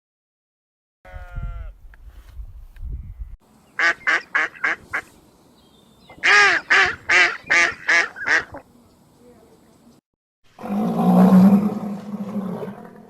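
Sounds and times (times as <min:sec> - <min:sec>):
animal calling: 0:06.0 - 0:09.5.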